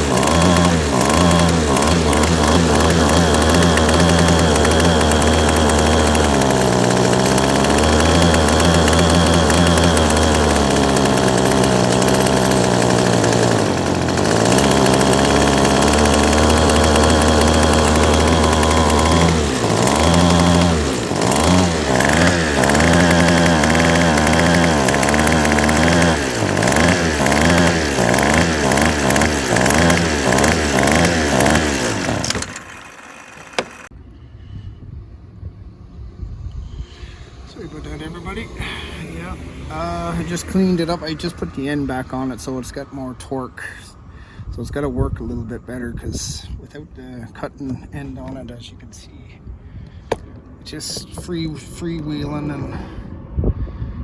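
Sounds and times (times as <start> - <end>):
string trimmer engine revving: 0.0 - 34.0, 37.4 - 42.3.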